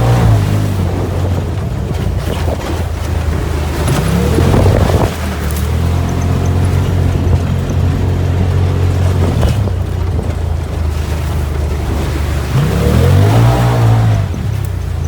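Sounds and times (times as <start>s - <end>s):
utility vehicle engine running: 0.0s - 15.0s.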